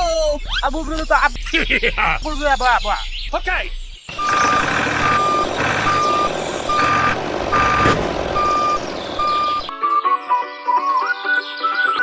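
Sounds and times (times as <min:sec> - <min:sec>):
buzzy noise: 0:04.0 - 0:09.7
reversing beeper: 0:04.1 - 0:10.0
music: 0:09.3 - 0:12.0.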